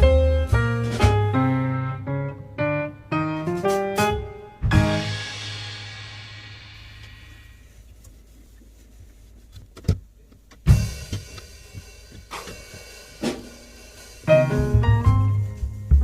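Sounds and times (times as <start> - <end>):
background music: 0.0 - 7.3, 14.1 - 16.0
faint handling noise: 7.0 - 12.9.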